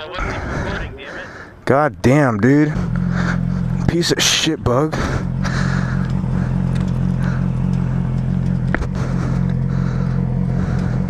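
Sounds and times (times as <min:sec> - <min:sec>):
motorcycle engine running: 0:02.4 - 0:11.0.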